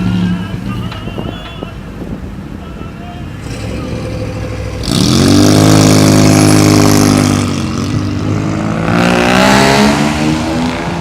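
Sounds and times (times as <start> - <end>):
car engine revving: 3.4 - 11.0.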